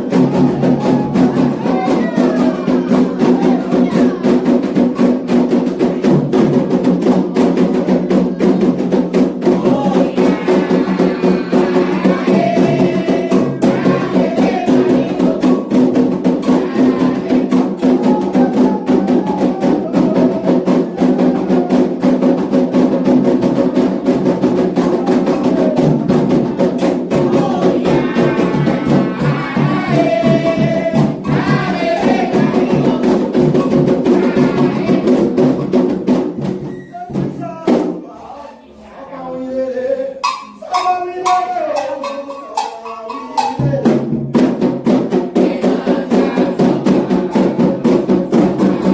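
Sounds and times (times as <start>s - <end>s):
person singing: 0.0s - 4.5s, 9.4s - 15.7s, 16.4s - 22.1s, 27.1s - 35.4s, 36.9s - 44.0s
hand drums playing: 0.0s - 38.0s, 40.2s - 48.9s.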